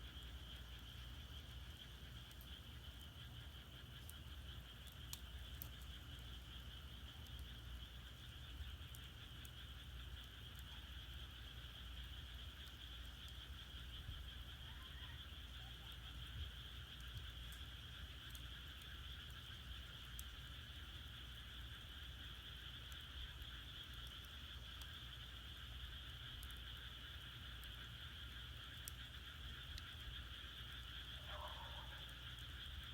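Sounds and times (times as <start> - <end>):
firewood popping: 0.0 - 10.8
frogs calling: 0.1 - 32.9.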